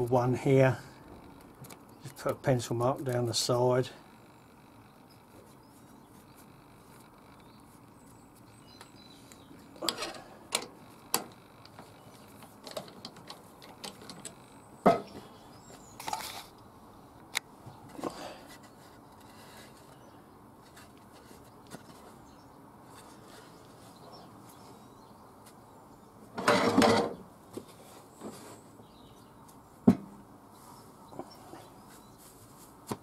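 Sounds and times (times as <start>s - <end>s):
objects knocking on workbench: 29.9s - 30.1s.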